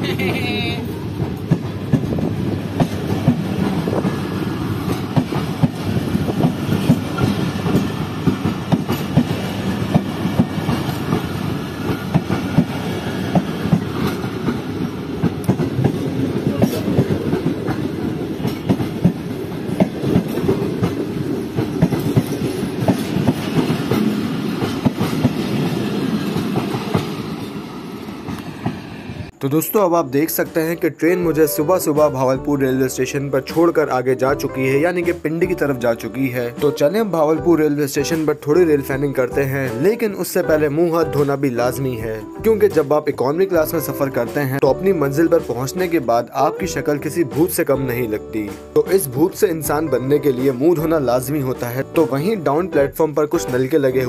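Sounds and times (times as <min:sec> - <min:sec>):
train coaches rumbling past: 0:00.0 - 0:54.0
wheels clicking over rail joints: 0:01.1 - 0:28.8.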